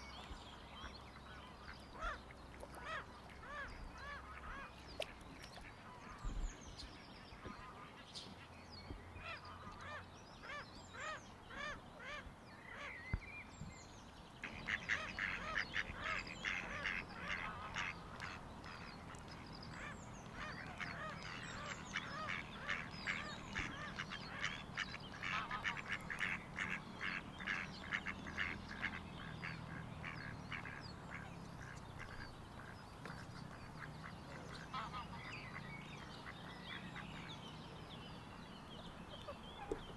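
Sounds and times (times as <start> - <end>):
waterbirds calling: 0.0 - 39.9.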